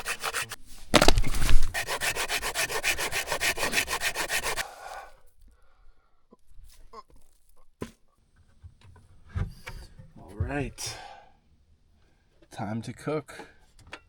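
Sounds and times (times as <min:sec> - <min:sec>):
rhythmic rasping strokes: 0:00.0 - 0:00.6, 0:01.5 - 0:04.6.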